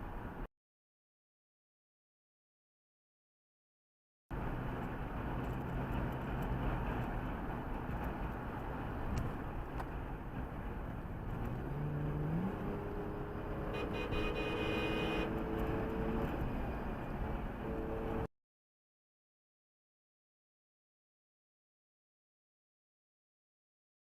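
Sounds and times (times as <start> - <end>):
road and tyre noise: 0.0 - 0.5, 4.3 - 18.3
car engine speeding up: 11.1 - 18.3.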